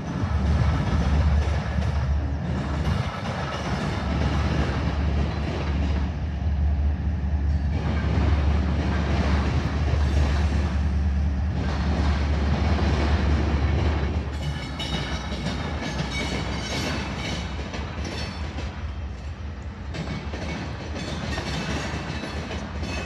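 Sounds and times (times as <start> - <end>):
freight train passing: 0.0 - 23.0.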